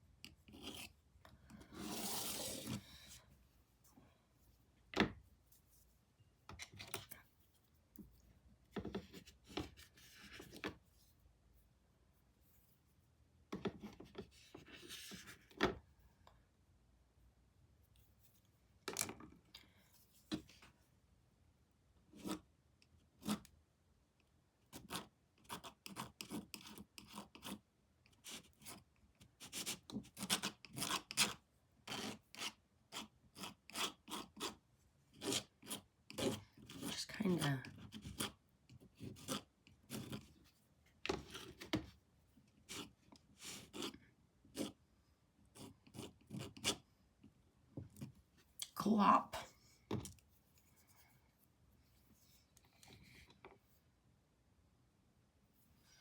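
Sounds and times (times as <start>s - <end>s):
paintbrush scratching on canvas: 1.7s - 2.8s, 37.7s - 40.5s.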